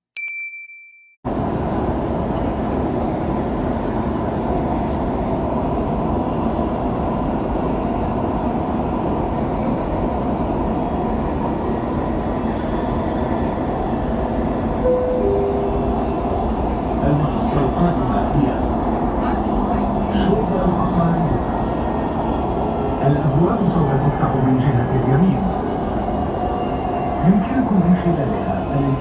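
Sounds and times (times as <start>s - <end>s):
train rumbling and hissing: 1.3s - 29.0s
two-note falling tone: 14.9s - 16.4s.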